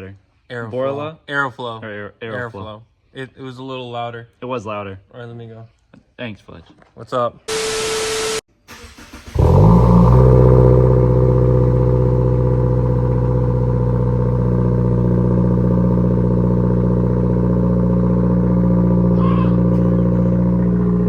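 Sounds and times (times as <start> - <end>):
car engine starting and idling: 7.5 - 21.0.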